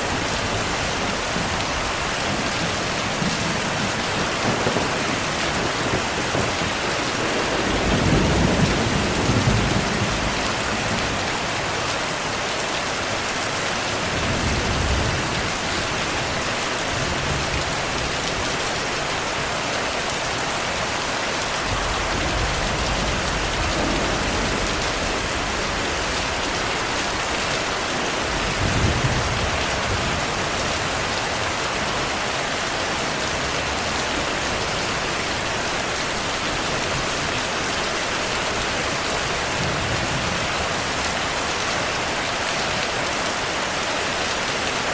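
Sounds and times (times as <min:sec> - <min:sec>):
heavy rain: 0:00.0 - 0:44.9
distant thunder rolling: 0:00.2 - 0:11.4, 0:21.6 - 0:27.5.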